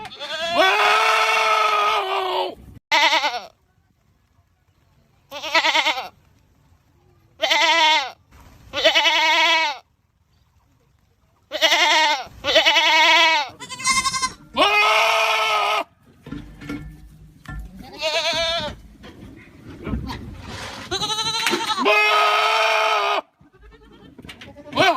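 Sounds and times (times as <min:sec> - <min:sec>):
goats bleating: 0:00.0 - 0:03.6, 0:05.3 - 0:06.2, 0:07.4 - 0:09.8, 0:11.5 - 0:15.9, 0:17.8 - 0:18.9, 0:20.8 - 0:24.9.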